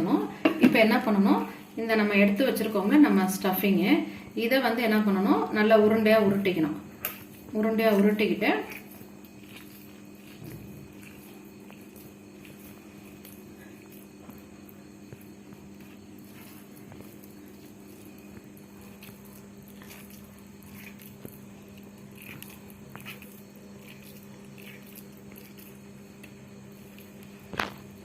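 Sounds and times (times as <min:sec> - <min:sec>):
steady low hum: 0:00.0 - 0:28.0
hands squishing minced meat: 0:07.1 - 0:28.0.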